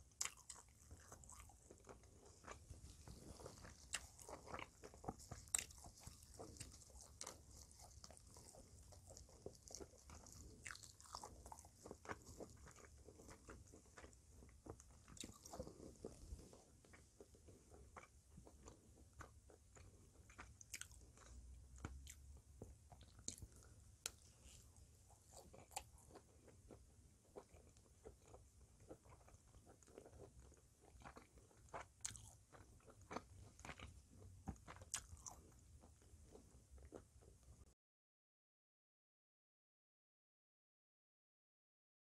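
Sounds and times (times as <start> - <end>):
chewing with wet mouth clicks: 0.0 - 37.4
crisp crust crunching: 0.2 - 22.0.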